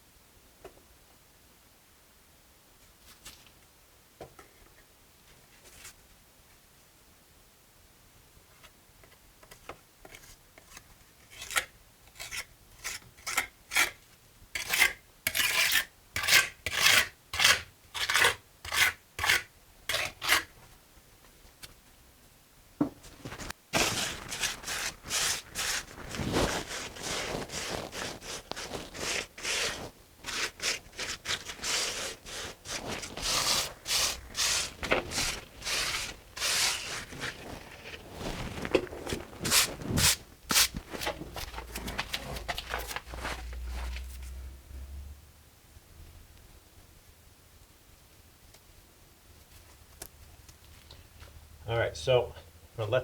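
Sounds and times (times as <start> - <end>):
trowel scraping mortar: 14.6 - 20.5, 23.2 - 43.4.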